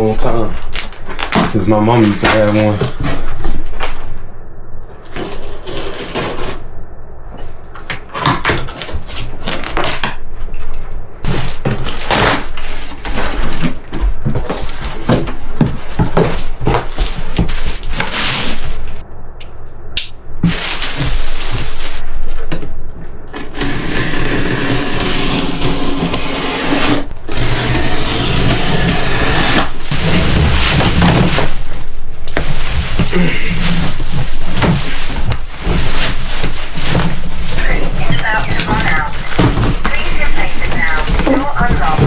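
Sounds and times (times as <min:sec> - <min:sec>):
steady noise: 0:00.0 - 0:42.0
cardboard box being torn open: 0:11.2 - 0:18.7, 0:32.4 - 0:42.0.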